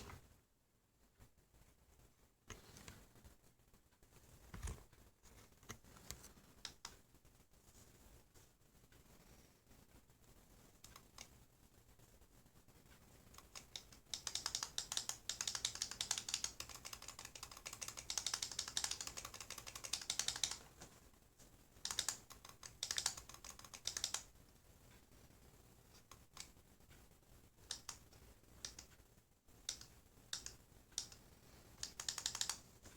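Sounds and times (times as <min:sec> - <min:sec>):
typing on laptop keyboard: 0:13.3 - 0:20.7, 0:21.8 - 0:24.4, 0:27.6 - 0:28.9, 0:29.6 - 0:31.2, 0:31.8 - 0:32.6.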